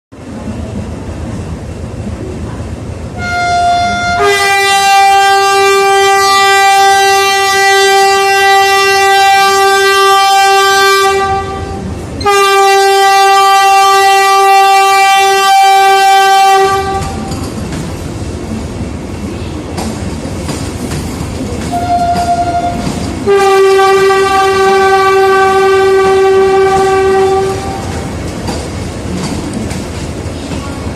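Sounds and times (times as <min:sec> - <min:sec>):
train horn blasts: 0:03.2 - 0:17.5, 0:21.7 - 0:28.1
train wheels clattering on rails: 0:04.8 - 0:30.9.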